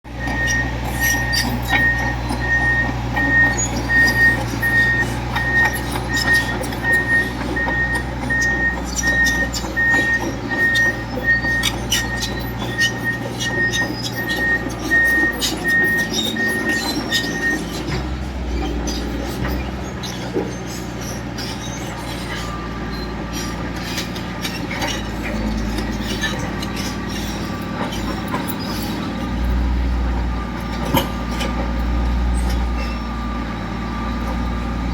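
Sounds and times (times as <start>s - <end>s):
bulldozer diesel engine: 0.0s - 34.9s
reversing alarm beeping: 0.1s - 20.2s
tracks clanking: 0.1s - 34.9s.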